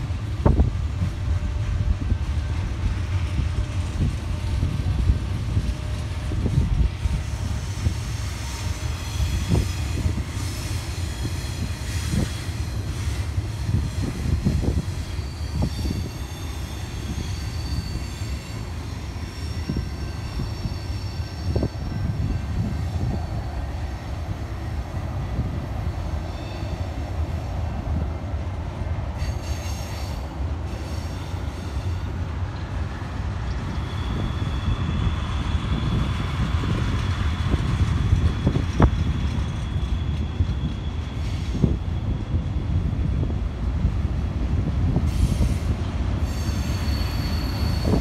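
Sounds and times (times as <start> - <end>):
freight train wheels rumbling: 0.0 - 48.0
high wheel squeal: 7.2 - 23.6, 33.5 - 37.0, 38.2 - 42.6, 45.1 - 48.0.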